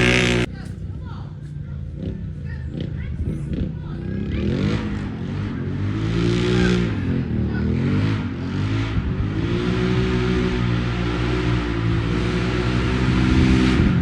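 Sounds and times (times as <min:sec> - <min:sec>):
engine revving: 0:00.0 - 0:00.6, 0:03.5 - 0:14.0.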